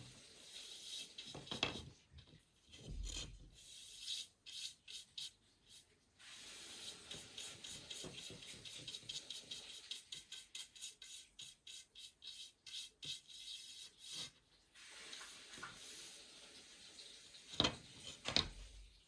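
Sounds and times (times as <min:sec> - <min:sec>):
paintbrush strokes on wood: 0:00.4 - 0:02.0, 0:03.6 - 0:16.4.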